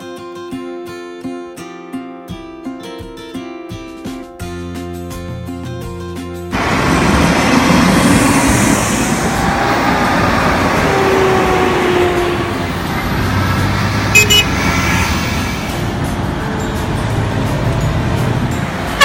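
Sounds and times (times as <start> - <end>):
vehicles driving off: 6.5 - 19.0.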